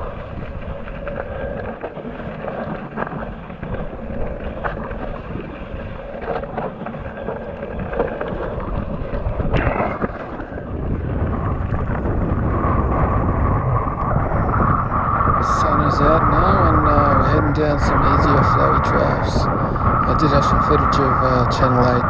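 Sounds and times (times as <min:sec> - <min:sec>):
wind buffeting microphone: 0:00.0 - 0:22.0
tyres rumbling on dirt trail: 0:06.0 - 0:22.0.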